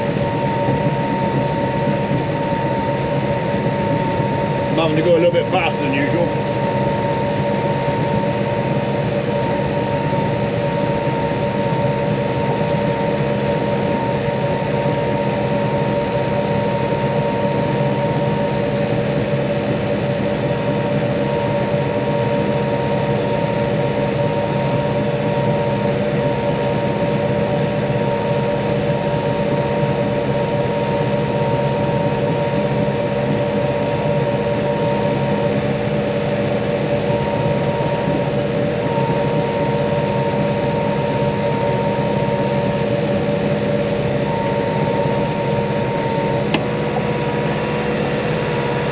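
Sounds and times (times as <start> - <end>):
drive whine: 0.0 - 48.9
tractor engine running: 42.9 - 48.9.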